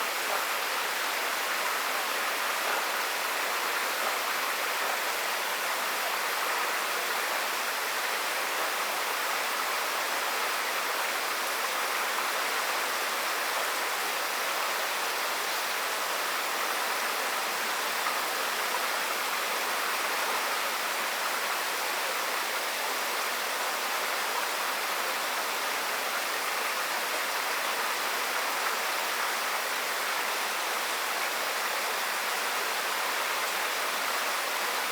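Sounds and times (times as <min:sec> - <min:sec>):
water rushing along a channel: 0:00.0 - 0:34.9.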